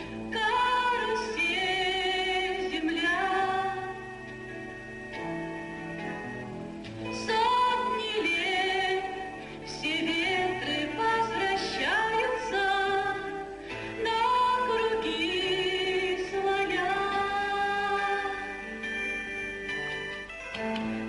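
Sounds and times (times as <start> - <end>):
woman singing with vibrato: 0.0 - 4.4, 7.0 - 19.0
instrumental accompaniment: 0.0 - 21.0.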